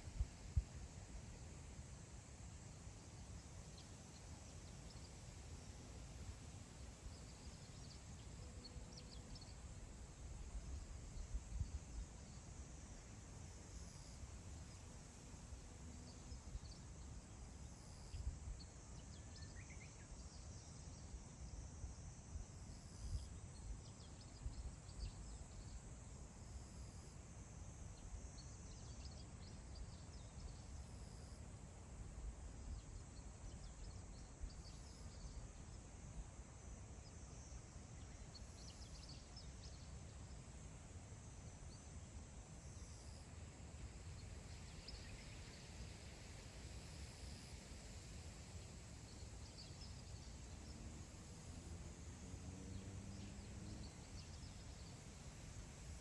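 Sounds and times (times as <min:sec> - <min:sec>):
light wind gusts: 0:31.0 - 0:56.0
insects chirring: 0:32.4 - 0:52.4, 0:53.2 - 0:56.0.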